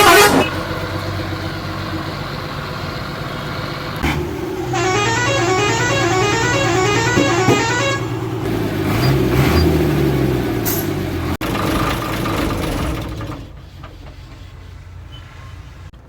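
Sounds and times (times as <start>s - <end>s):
bus horn: 0.0s - 0.8s, 4.6s - 8.5s
engine revving: 0.0s - 13.7s
bus diesel engine running: 0.0s - 16.0s.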